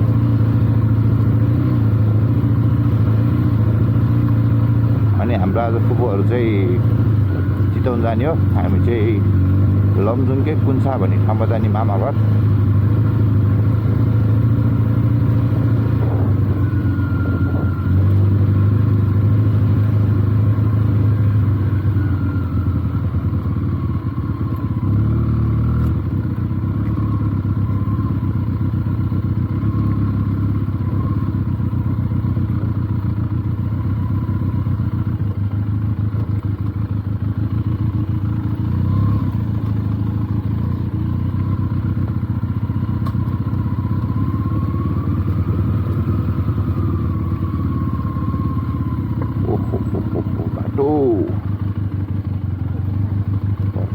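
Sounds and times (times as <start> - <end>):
motorcycle engine at low revs: 0.0 - 53.9.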